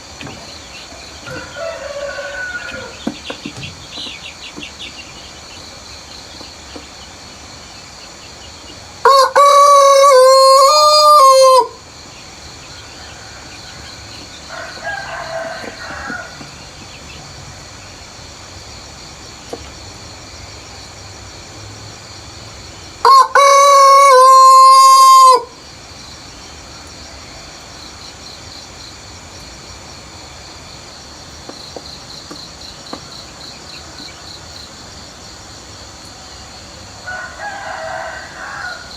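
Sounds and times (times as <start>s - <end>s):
rooster crowing: 1.2s - 3.1s, 9.0s - 11.8s, 12.7s - 16.8s, 23.0s - 25.6s, 37.0s - 38.9s.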